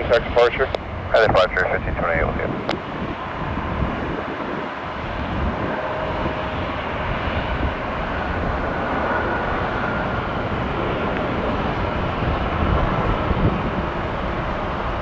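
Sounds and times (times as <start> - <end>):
jet engines roaring: 0.0 - 15.0
faint whining tones: 1.4 - 15.0.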